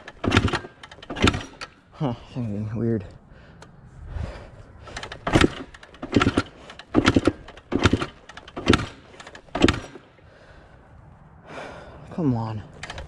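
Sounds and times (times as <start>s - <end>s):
motorcycle engine kick-start clatter: 0.0s - 1.8s, 4.8s - 10.1s, 12.8s - 13.0s.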